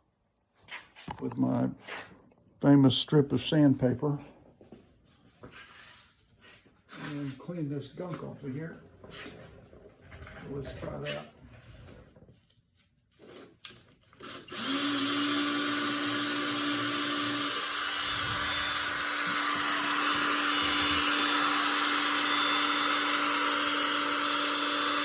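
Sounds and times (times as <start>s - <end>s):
electric drill motor whine: 14.2s - 25.0s.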